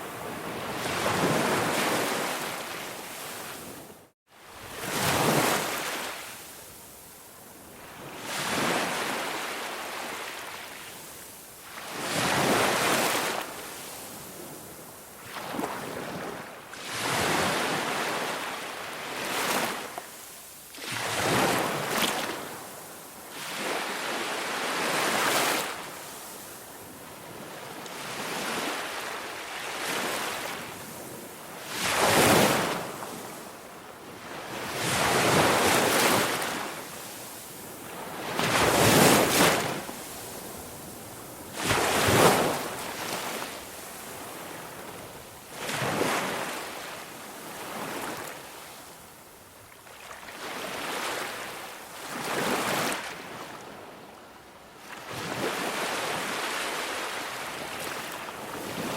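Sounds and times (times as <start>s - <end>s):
ocean waves breaking: 34.7s - 48.3s.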